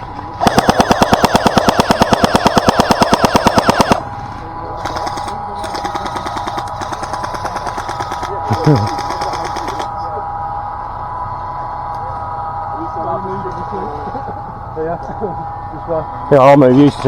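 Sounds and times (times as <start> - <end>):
gearbox motor whine: 0.0 - 17.0
airsoft gun full-auto firing: 0.4 - 4.1, 4.8 - 9.9
faint rapid firing: 0.4 - 9.9.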